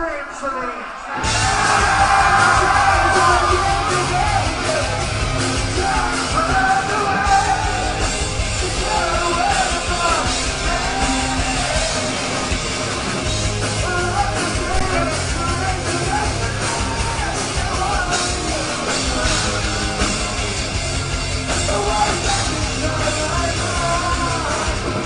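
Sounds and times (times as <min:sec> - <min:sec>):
metal band playing: 0:00.0 - 0:25.0
person singing: 0:01.4 - 0:05.0, 0:05.6 - 0:08.0, 0:08.6 - 0:12.1, 0:13.8 - 0:20.3, 0:21.6 - 0:25.0.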